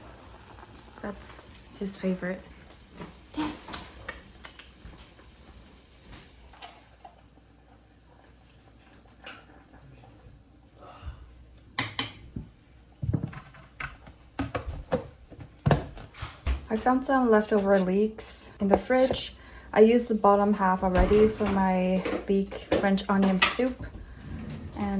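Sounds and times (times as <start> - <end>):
pots and dishes clinking: 6.5 - 7.3, 11.8 - 12.4, 21.2 - 24.8.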